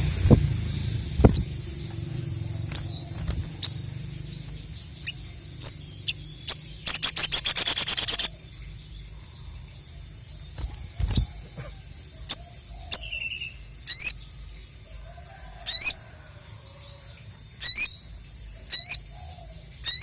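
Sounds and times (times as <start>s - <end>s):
bird rapid trill: 0.0s - 8.8s, 10.0s - 14.3s
bird chirping: 0.0s - 20.0s.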